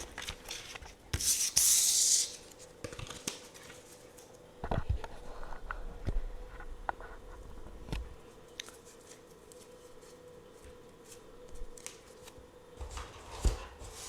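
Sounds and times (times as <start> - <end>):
faint steady hum: 0.0 - 14.0
cards flicking and tapping: 0.2 - 3.8.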